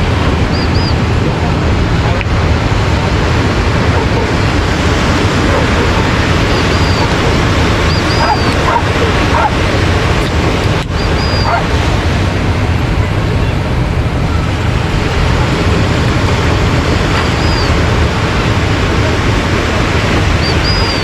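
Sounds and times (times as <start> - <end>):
ocean surf washing on beach: 0.0 - 21.0
faint dogs barking: 3.7 - 9.8, 11.0 - 11.8, 16.9 - 17.9.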